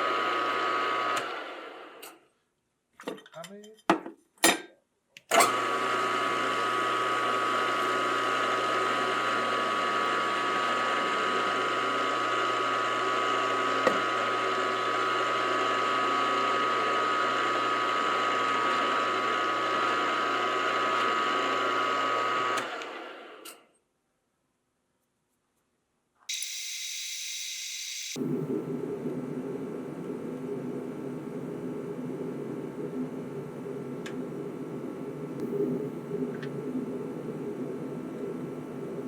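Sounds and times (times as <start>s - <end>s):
electric motor whining: 26.3s - 28.2s.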